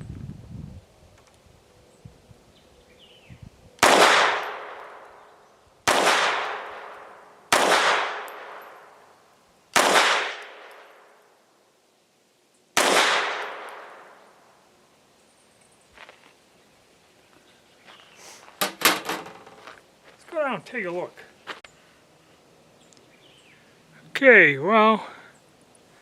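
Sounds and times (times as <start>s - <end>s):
pistol shots with echo: 3.8s - 5.2s, 5.8s - 9.0s, 9.8s - 10.8s, 12.8s - 14.2s.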